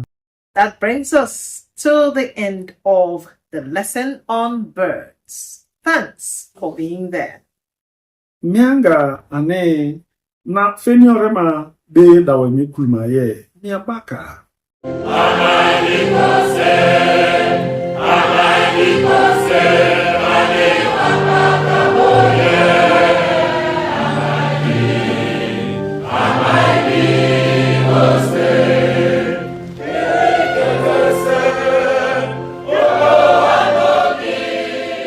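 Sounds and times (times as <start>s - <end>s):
choir singing: 14.9s - 35.0s.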